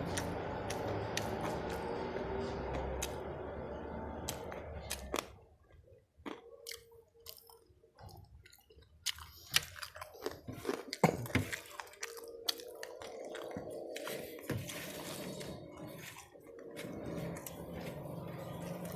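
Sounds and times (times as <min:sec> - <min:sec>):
wet chewing: 0:00.0 - 0:18.9
crispy food crunching: 0:04.0 - 0:18.9.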